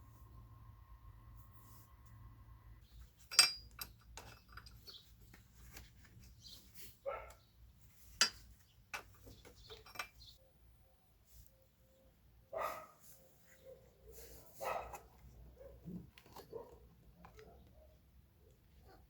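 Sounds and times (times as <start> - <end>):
metallic clinks of tools: 3.3 - 5.0, 9.7 - 10.2
dog barking: 7.0 - 7.4, 12.5 - 18.0.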